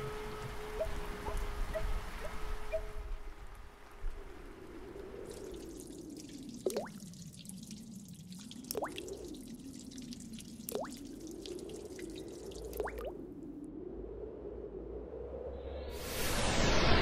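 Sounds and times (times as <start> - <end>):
water drip plinks: 5.2 - 13.2.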